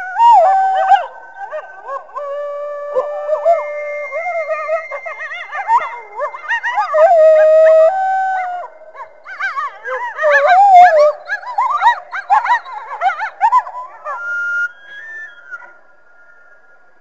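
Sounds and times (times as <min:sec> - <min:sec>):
coyotes howling and yipping: 0:00.0 - 0:15.9.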